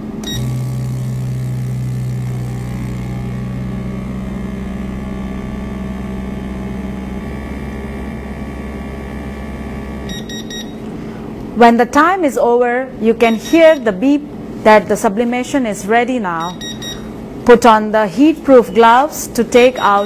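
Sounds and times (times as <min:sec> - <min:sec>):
pump motor humming: 0:00.2 - 0:10.5.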